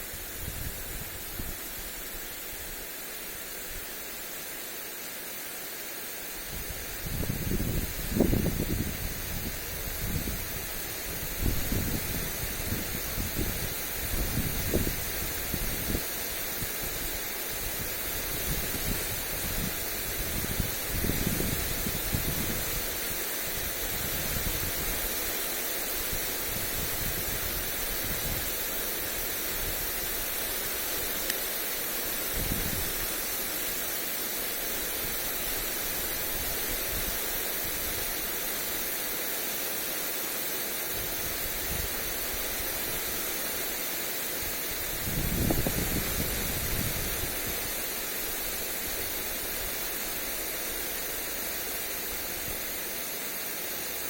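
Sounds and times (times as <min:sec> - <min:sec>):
sprinkler spray hissing on grass: 0:00.0 - 0:54.0
wind buffeting microphone: 0:06.5 - 0:22.8, 0:32.3 - 0:33.0, 0:44.7 - 0:47.8.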